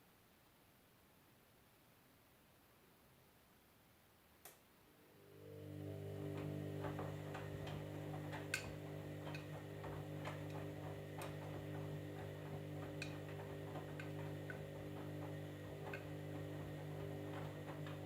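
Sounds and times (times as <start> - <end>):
machine electric hum: 4.9 - 18.0.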